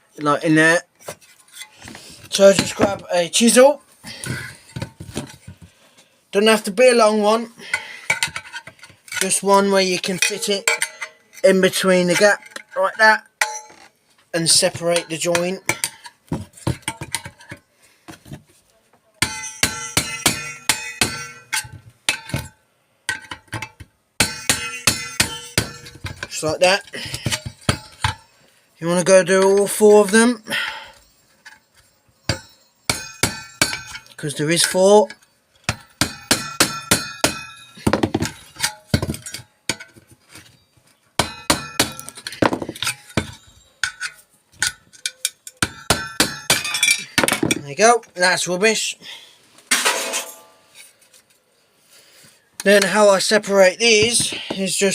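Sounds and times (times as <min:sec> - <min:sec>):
hammer striking steel chisel: 0:19.2 - 0:22.5, 0:24.2 - 0:26.4, 0:31.4 - 0:34.1, 0:35.1 - 0:39.8, 0:41.2 - 0:47.5.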